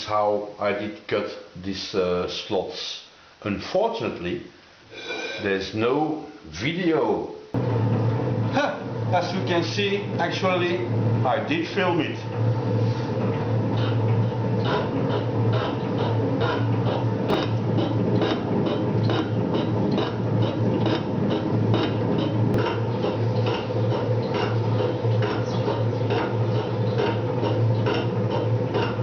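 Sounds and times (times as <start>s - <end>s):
motor humming: 7.6s - 29.0s.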